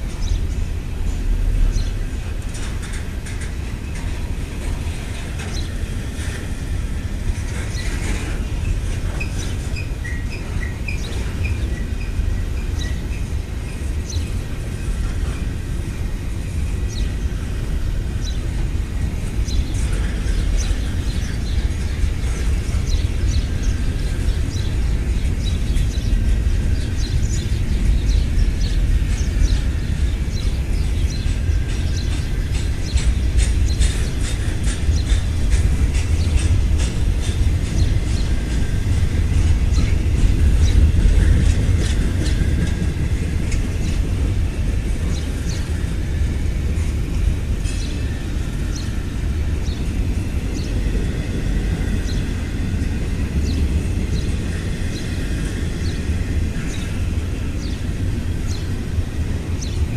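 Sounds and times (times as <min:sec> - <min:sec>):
freight train rumbling past: 0:00.0 - 0:59.9
wheels clicking and squeaking: 0:01.8 - 0:06.7, 0:07.3 - 0:15.6, 0:19.5 - 0:46.9.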